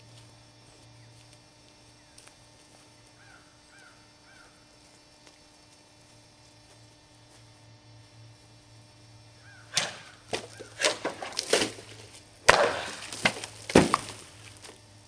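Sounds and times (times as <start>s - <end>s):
low hum: 0.0s - 15.0s
bird calling: 3.2s - 4.6s, 9.4s - 11.1s.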